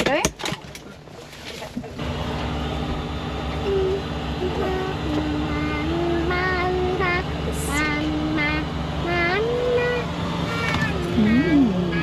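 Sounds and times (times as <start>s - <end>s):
vehicle engine humming: 0.8s - 12.0s
child humming or singing: 3.6s - 12.0s.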